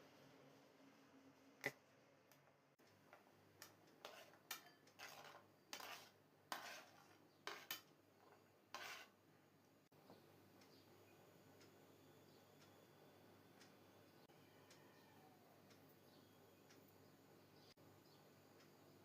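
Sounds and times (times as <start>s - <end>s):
cutlery scraping food: 3.6s - 9.2s.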